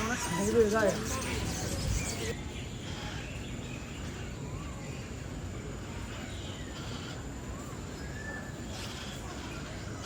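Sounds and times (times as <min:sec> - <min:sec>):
faint whistled bird calls: 0:05.9 - 0:10.0.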